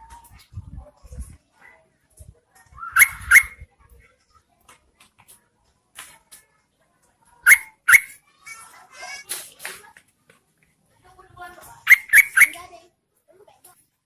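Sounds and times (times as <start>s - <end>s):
bulbul calling: 2.9s - 3.6s, 7.5s - 8.2s, 11.9s - 12.7s.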